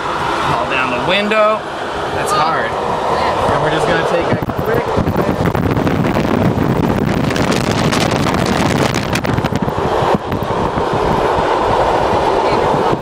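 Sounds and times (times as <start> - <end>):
train running noise: 0.0 - 13.0
wind buffeting the microphone: 2.7 - 13.0.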